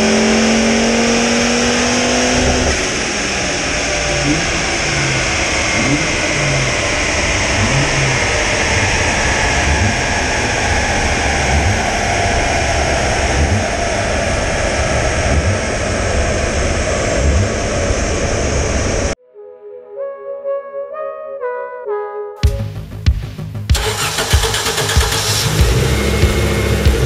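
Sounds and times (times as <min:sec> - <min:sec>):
car engine running: 0:00.0 - 0:19.2, 0:22.6 - 0:27.0
cooling fans: 0:00.0 - 0:19.2, 0:23.8 - 0:27.0
rush of dyno rollers: 0:00.0 - 0:19.2, 0:23.7 - 0:27.0
whine falling in pitch: 0:01.7 - 0:20.8, 0:25.3 - 0:27.0
music: 0:19.2 - 0:27.0.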